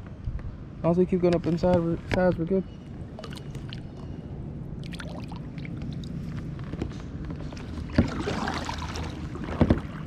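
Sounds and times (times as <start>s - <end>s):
faint water sounds: 2.3s - 6.5s, 7.4s - 10.0s.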